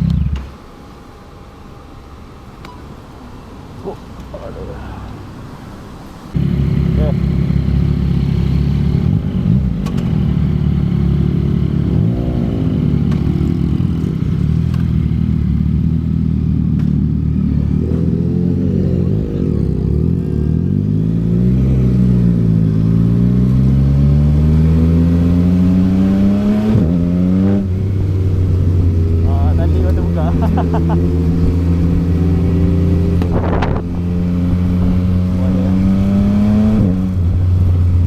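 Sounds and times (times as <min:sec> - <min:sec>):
motorcycle accelerating: 0:00.0 - 0:00.6, 0:06.3 - 0:38.0
motorcycle engine revving: 0:06.4 - 0:38.0.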